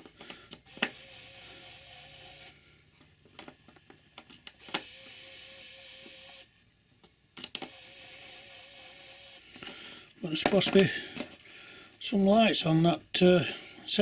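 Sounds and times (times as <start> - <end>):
small drive mechanism humming: 0.4 - 2.6.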